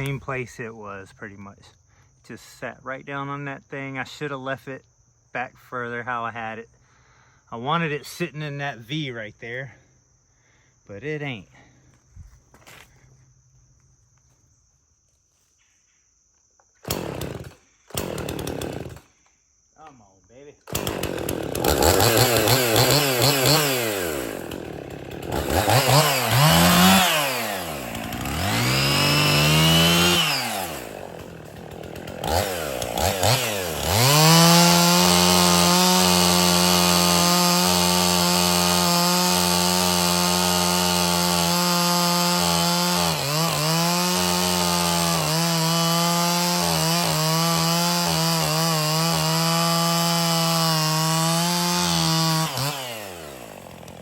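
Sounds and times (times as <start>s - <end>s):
chainsaw revving and cutting: 16.8s - 19.1s, 20.7s - 54.0s.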